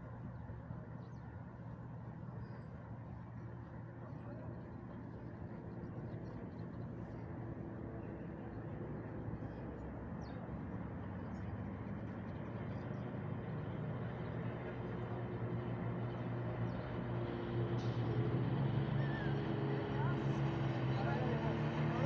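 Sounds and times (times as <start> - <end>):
engine running: 11.6 - 22.0.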